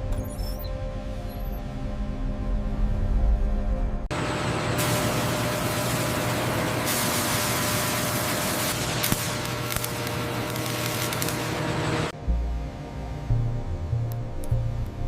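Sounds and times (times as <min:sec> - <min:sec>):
faint machine tones: 0:00.0 - 0:04.1
loud steady hiss: 0:04.8 - 0:12.1.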